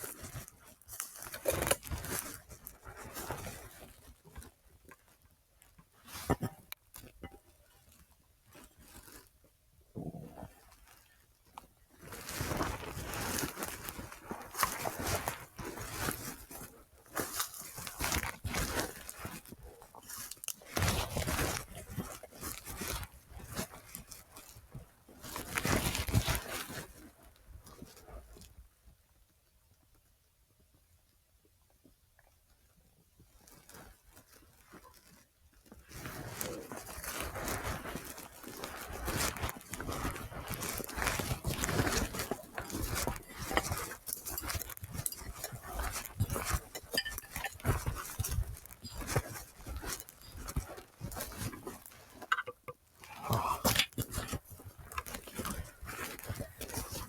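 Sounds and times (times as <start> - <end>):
footsteps crunching on rough ground: 36.0 - 57.0.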